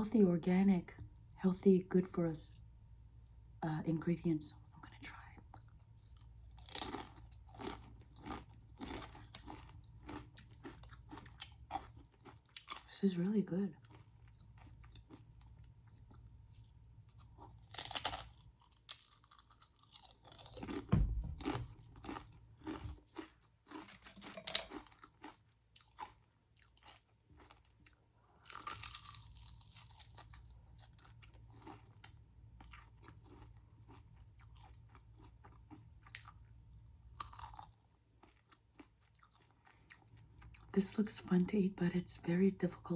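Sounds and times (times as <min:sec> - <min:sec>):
chewing: 0:05.5 - 0:12.9, 0:13.8 - 0:40.7
crunchy food biting: 0:17.2 - 0:36.4, 0:37.2 - 0:38.6.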